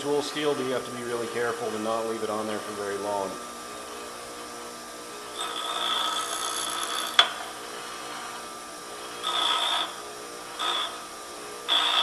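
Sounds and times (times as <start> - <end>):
grinder motor humming: 0.0 - 12.0
short grinding bursts: 5.3 - 11.1, 11.7 - 12.0.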